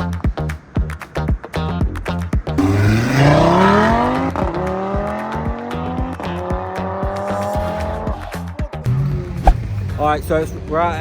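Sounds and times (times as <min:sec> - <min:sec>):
car engine accelerating: 0:02.6 - 0:05.9.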